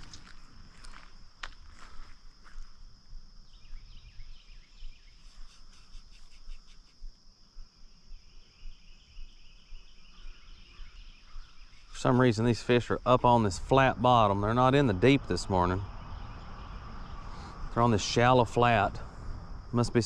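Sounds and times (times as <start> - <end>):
high-pitched insect drone: 1.7 - 20.0
bird chirping rapidly: 8.2 - 12.2, 13.9 - 18.8.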